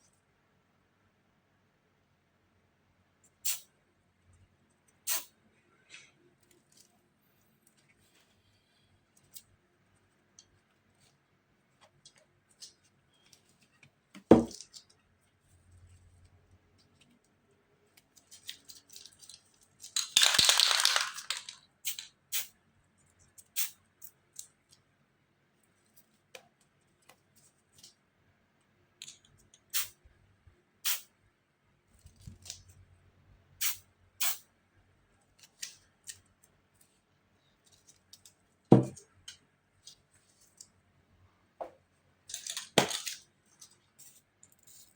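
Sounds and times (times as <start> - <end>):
spray paint can hissing: 3.4 - 3.7, 30.8 - 31.1.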